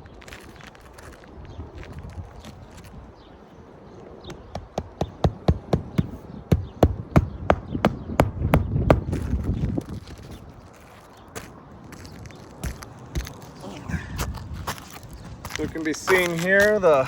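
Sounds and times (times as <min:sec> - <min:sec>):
hammer striking roofing nails: 0:04.3 - 0:09.2.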